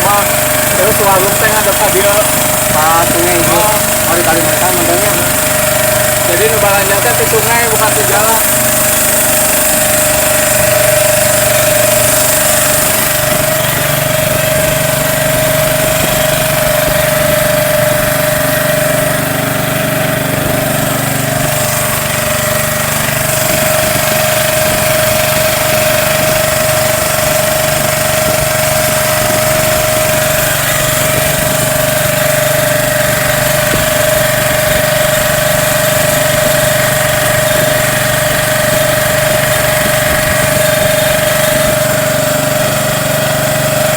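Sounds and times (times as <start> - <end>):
small boat engine running: 0.0 - 43.9.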